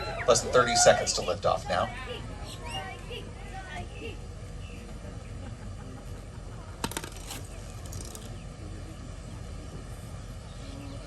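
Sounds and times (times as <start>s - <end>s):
low outdoor background noise: 0.0s - 11.0s.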